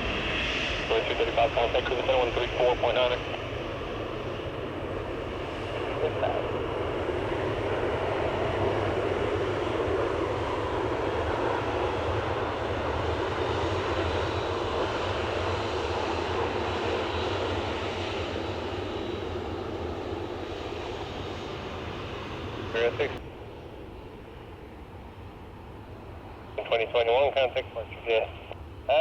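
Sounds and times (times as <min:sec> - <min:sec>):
jet engine roar at takeoff: 0:00.0 - 0:29.0.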